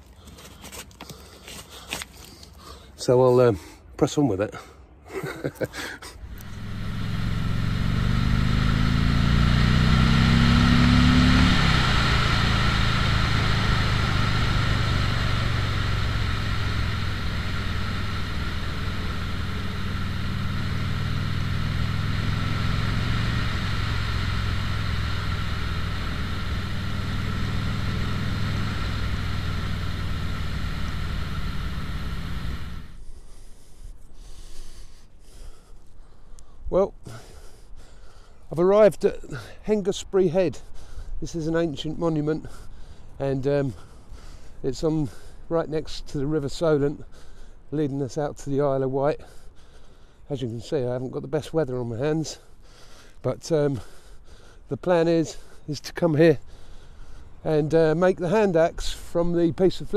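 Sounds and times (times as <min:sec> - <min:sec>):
rush of noise: 0:06.2 - 0:33.0
three-wheeler engine accelerating: 0:06.2 - 0:33.0, 0:57.6 - 0:59.9.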